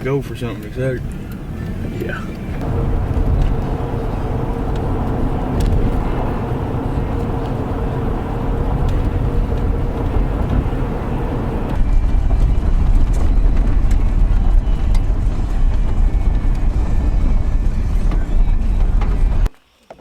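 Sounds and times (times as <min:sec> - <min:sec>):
vehicle engine and road rumble: 0:00.0 - 0:19.5
faint steady hum: 0:02.6 - 0:11.8.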